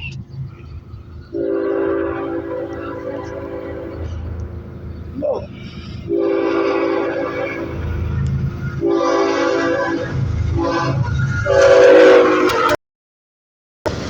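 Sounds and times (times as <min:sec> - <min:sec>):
low rumble of train: 0:00.0 - 0:12.8
locomotive air horn blasts: 0:01.3 - 0:04.5, 0:05.6 - 0:08.1, 0:08.7 - 0:12.8.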